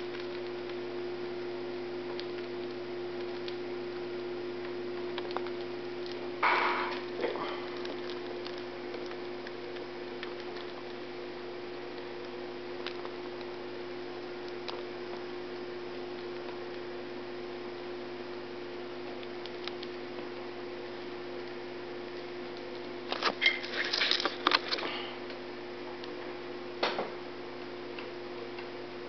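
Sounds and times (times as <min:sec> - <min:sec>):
bird nibbling cereal clicks: 0:00.0 - 0:18.1, 0:18.8 - 0:24.9
electrical hum: 0:00.0 - 0:29.0.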